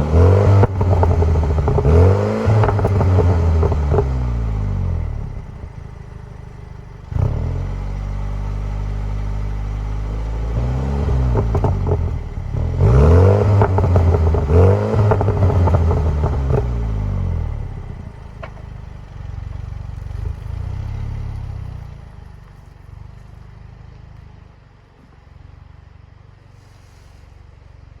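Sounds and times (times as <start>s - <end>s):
exhaust burbles and pops: 0.0s - 6.5s, 11.0s - 20.7s
car exhaust revving: 0.0s - 22.3s.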